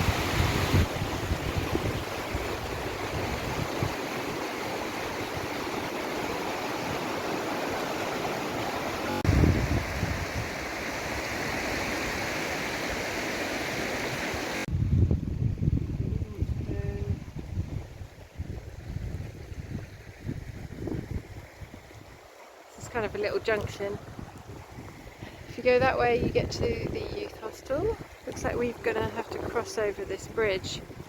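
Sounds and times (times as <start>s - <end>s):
wind gusting on microphone: 0.0s - 31.0s
river flowing over rocks: 2.2s - 9.3s.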